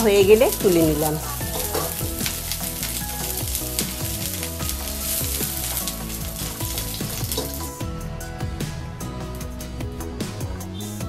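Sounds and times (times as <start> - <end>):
vegetables sizzling in hot oil: 0.0 - 7.8
background music: 0.0 - 11.0
spatula scraping a pan: 1.2 - 3.3.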